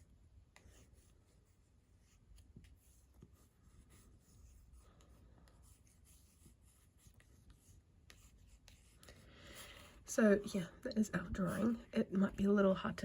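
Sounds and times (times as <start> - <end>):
pencil scratching on paper: 0.0 - 10.4, 11.1 - 12.1.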